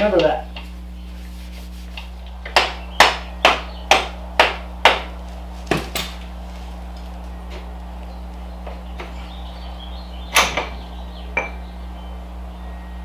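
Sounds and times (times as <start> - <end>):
hammer strikes: 2.4 - 5.1.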